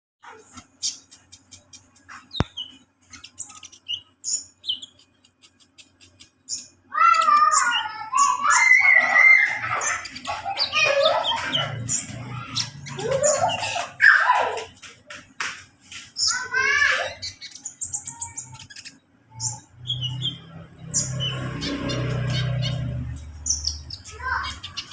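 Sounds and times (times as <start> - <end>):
bird chirping and warbling: 0.2 - 24.9.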